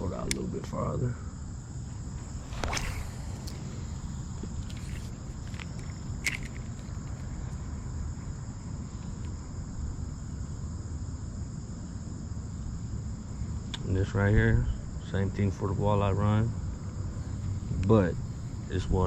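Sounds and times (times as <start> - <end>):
crickets chirring: 0.0 - 19.0
short sharp swish: 2.2 - 3.8.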